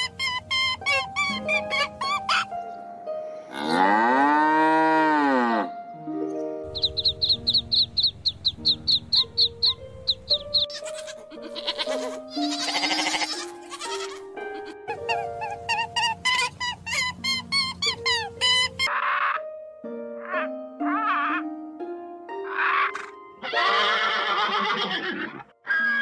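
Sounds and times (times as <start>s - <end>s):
light background music: 0.0s - 26.0s
goat bleating: 10.7s - 14.7s
animal call rising and falling: 22.5s - 26.0s.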